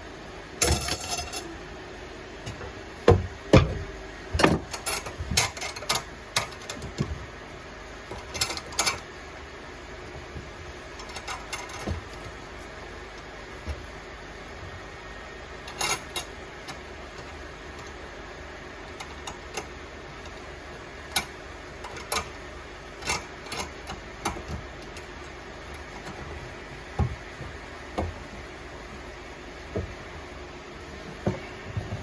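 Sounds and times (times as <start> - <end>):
steady low hum: 0.0 - 32.0
clicks and knocks of tools: 0.6 - 1.5, 4.3 - 7.1, 8.1 - 9.0, 11.0 - 12.4, 15.7 - 18.0, 21.1 - 22.4, 23.0 - 25.1.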